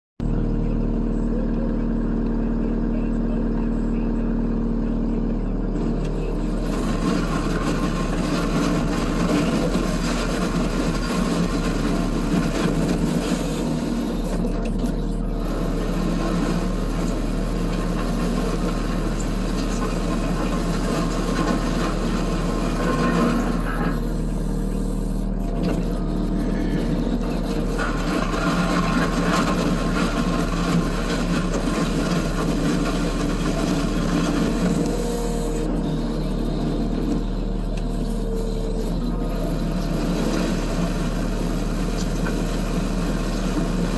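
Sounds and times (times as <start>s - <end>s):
diesel engine running: 0.2s - 43.9s
rough scraping: 16.1s - 35.8s.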